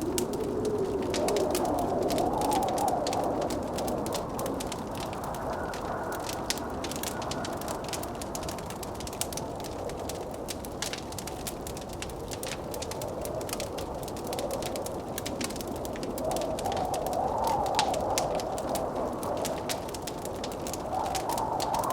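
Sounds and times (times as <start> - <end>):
blizzard wind howling: 0.0 - 21.9
wood fire crackling: 0.0 - 21.9.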